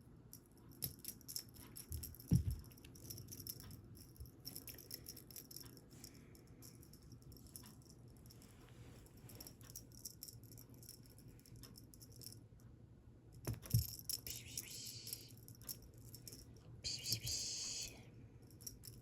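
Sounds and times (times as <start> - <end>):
cat toy rattling and clicking: 0.3 - 8.6.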